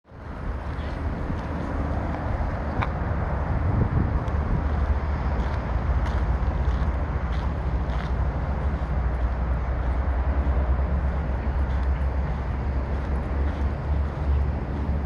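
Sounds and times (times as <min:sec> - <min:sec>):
wind rumble on microphone: 0:00.1 - 0:15.0.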